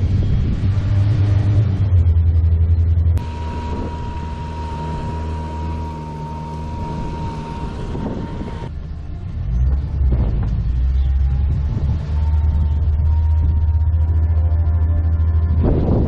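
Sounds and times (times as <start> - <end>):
outboard motor running: 2.2 - 8.8.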